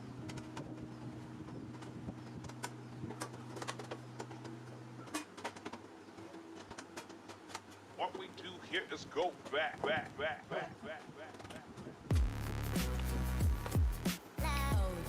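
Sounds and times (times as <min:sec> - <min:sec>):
faint background music: 0:00.0 - 0:09.8, 0:12.1 - 0:15.0.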